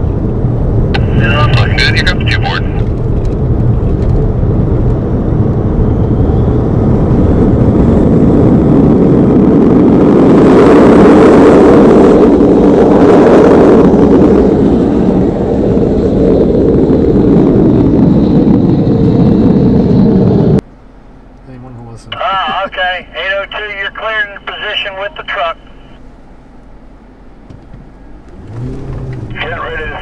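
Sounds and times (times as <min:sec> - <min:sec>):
wind noise: 0:00.0 - 0:20.6
car engine at speed: 0:00.0 - 0:30.0
road noise: 0:00.0 - 0:30.0.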